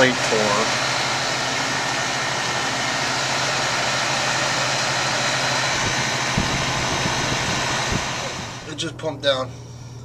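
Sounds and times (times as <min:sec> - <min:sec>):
refrigeration unit running: 0:00.0 - 0:10.0
soft low thumps: 0:05.8 - 0:08.7.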